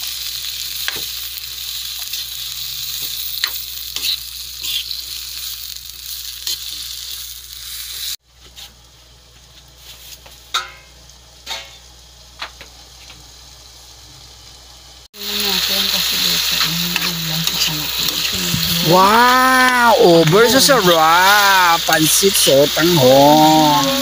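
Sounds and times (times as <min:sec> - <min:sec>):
vegetables sizzling in a wok: 0:00.0 - 0:24.0
light simmer: 0:08.3 - 0:24.0.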